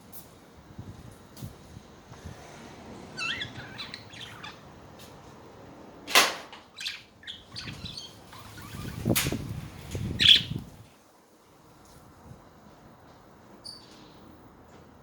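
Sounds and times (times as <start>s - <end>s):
budgerigars chattering: 3.2s - 4.6s, 6.8s - 9.1s, 10.2s - 10.6s
loud sharp click: 6.1s - 6.6s.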